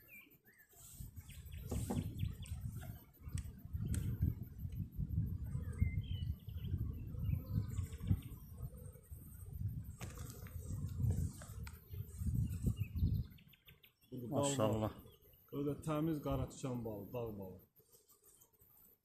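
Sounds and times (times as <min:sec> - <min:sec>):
birds chirping: 0:00.0 - 0:17.6
wooden hive frames knocking: 0:01.6 - 0:02.9.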